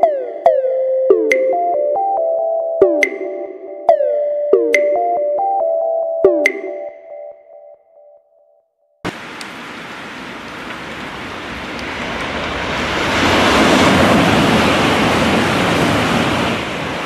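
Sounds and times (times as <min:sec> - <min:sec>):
train rushing past: 0:09.1 - 0:17.0.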